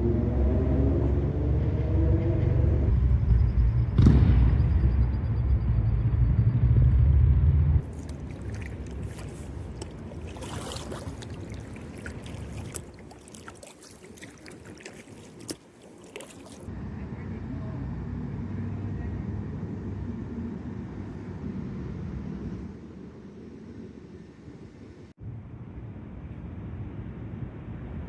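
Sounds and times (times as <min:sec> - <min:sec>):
loud low rumble: 0:01.1 - 0:07.8
kayak paddle splashes: 0:07.8 - 0:16.7
water dripping and trickling: 0:07.8 - 0:16.7.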